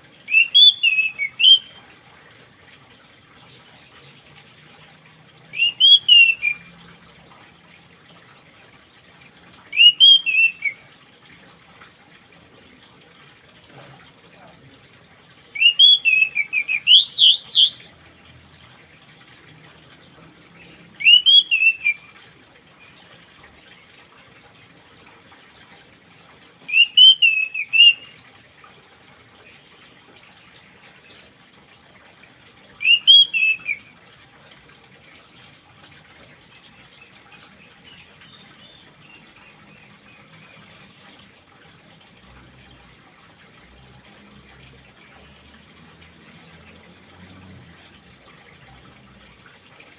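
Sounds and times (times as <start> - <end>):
running water trickling: 0.0 - 49.9
thrush whistled song: 0.3 - 1.8, 5.5 - 6.9, 9.7 - 10.8, 15.5 - 17.9, 20.9 - 22.1, 26.7 - 28.2, 32.8 - 34.0.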